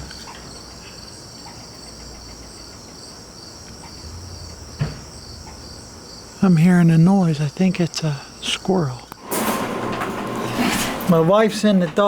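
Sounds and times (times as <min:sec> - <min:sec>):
insects chirping: 0:00.0 - 0:09.3.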